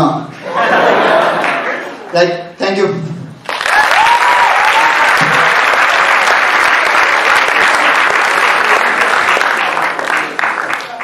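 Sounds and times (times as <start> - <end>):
audience applauding: 1.2 - 2.0, 3.4 - 11.0.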